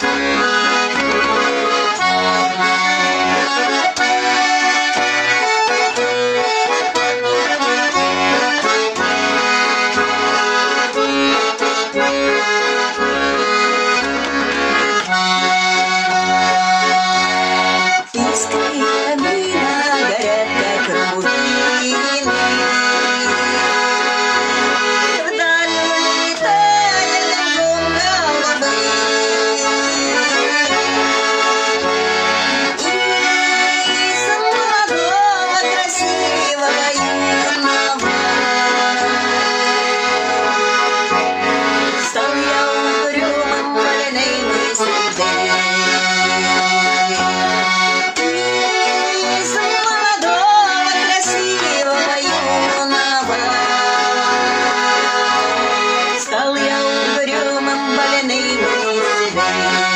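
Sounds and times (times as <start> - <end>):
accordion music: 0.0 - 59.9.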